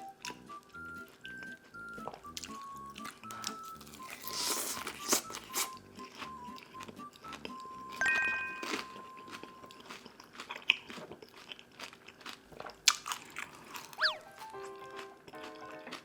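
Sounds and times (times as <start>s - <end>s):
crunching bites and chewing: 2.0s - 8.0s, 8.6s - 16.0s
short electronic tones: 14.0s - 14.3s.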